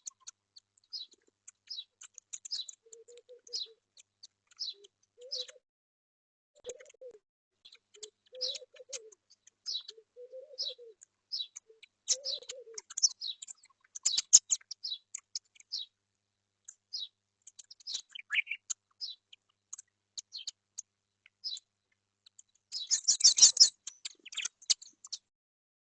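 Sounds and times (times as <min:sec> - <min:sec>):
small birds chirping: 0:00.0 - 0:05.6, 0:06.6 - 0:25.3
dove cooing: 0:02.5 - 0:03.8, 0:04.6 - 0:05.6, 0:06.6 - 0:13.1.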